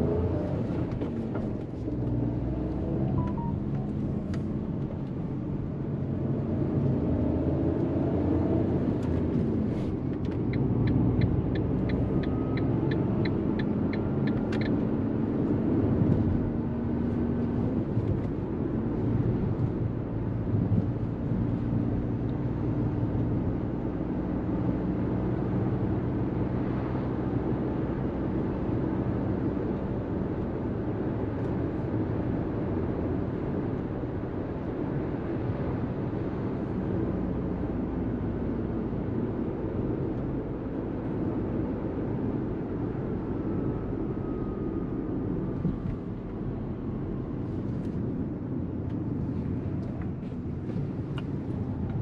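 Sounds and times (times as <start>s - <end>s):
turn signal ticking: 10.2s - 14.8s.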